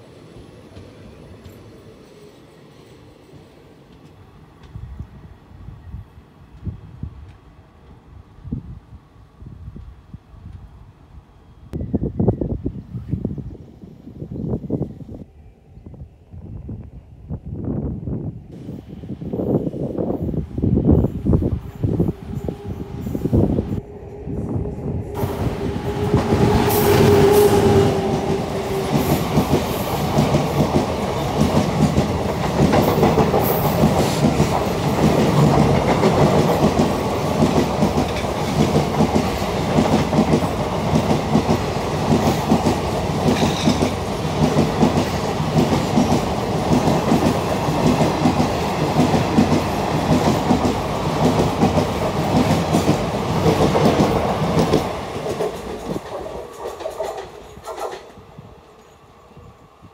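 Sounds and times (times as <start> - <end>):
train wheels clacking over rail joints: 28.0 - 58.1.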